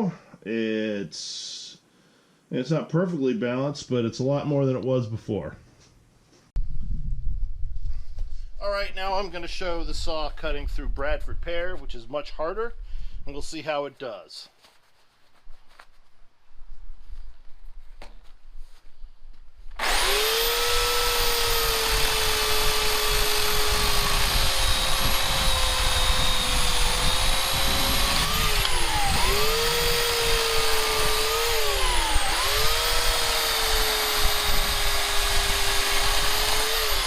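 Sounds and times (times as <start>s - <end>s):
chain cutting through wood: 19.8s - 37.0s
electric chainsaw whining: 19.8s - 37.0s.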